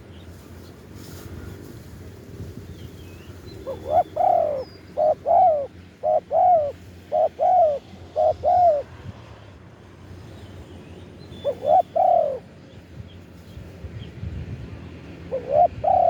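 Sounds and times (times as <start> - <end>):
dove cooing: 3.6 - 8.9, 11.4 - 12.5, 15.2 - 16.0.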